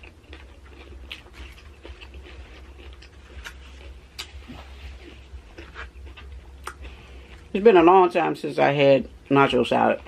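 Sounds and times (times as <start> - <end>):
crisp chewing crunches: 0.0 - 7.5
low steady hum: 0.0 - 10.0.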